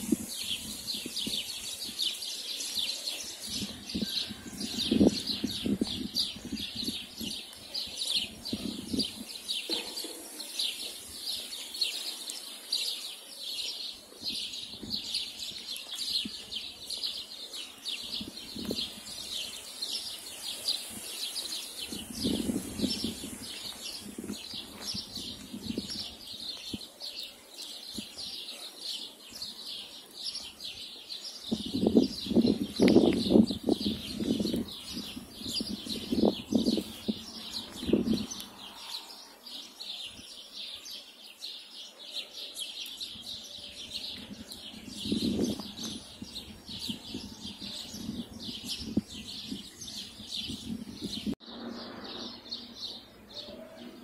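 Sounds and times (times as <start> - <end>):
small birds chirping: 0.0 - 54.0
louder lower-pitched noise: 51.4 - 53.2.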